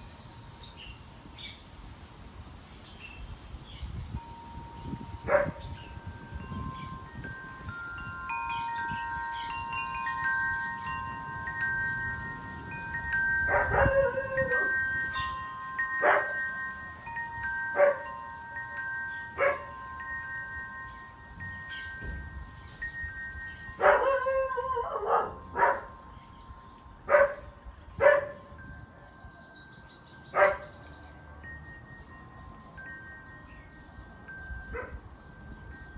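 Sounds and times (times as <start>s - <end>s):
wind chimes ringing: 0.0s - 1.7s, 3.0s - 35.9s
dog barking: 25.0s - 25.9s, 28.0s - 28.4s, 30.4s - 30.6s.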